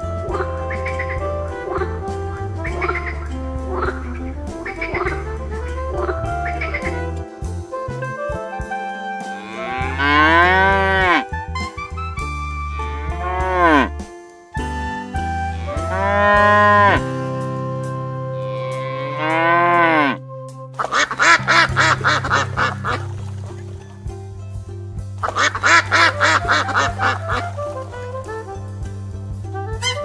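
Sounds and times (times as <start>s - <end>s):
background music: 0.0s - 30.0s
ducks quacking: 0.2s - 7.2s, 20.8s - 23.9s, 25.2s - 28.5s, 29.7s - 30.0s
cows mooing: 9.3s - 11.4s, 12.8s - 14.0s, 15.5s - 17.1s, 18.3s - 20.2s.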